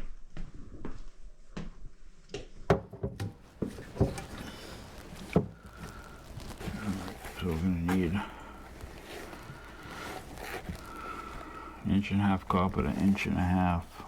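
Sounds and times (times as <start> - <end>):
tools and pipe parts clanking: 2.9 - 5.9.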